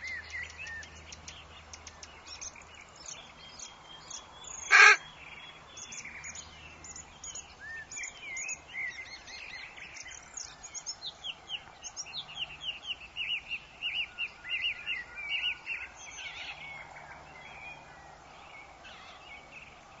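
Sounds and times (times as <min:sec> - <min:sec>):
birds chirping and calling: 0:00.0 - 0:16.9.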